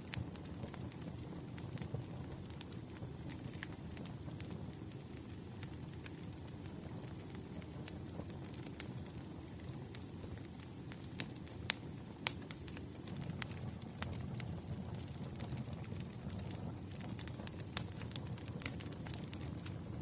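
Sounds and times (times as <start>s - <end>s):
faint high whine: 0.0s - 12.8s
wood fire crackling: 0.0s - 20.0s.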